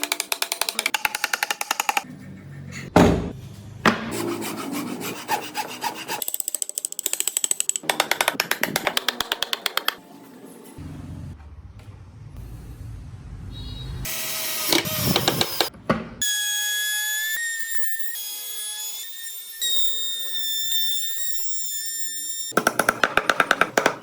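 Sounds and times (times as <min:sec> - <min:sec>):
rasp scraping on wood: 0:04.2 - 0:06.2.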